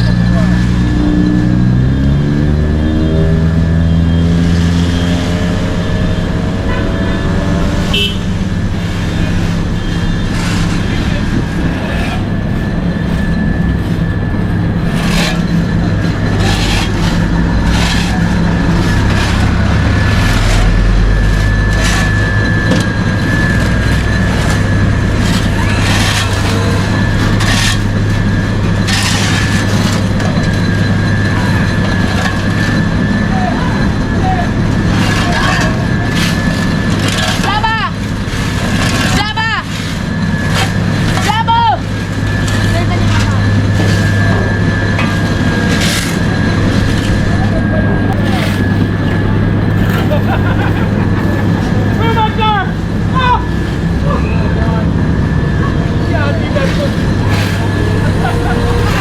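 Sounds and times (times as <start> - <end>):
diesel engines droning: 0.0 - 59.0.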